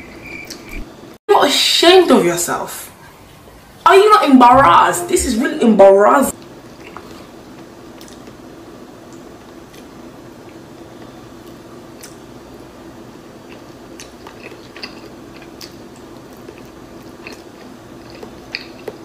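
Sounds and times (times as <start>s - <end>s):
steady low hum: 2.9s - 19.0s
chewing and biting: 9.6s - 12.2s, 13.4s - 19.0s.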